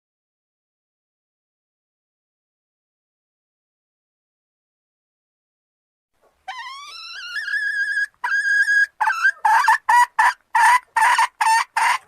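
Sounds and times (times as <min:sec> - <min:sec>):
junglefowl hen calling: 0:06.4 - 0:12.0.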